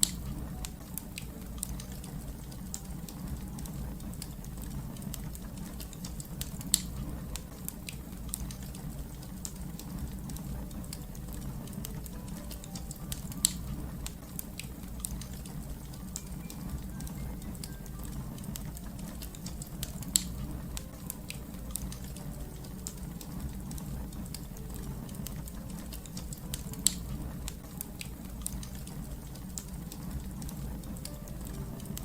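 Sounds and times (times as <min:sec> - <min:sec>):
fire crackling: 0:00.0 - 0:32.0.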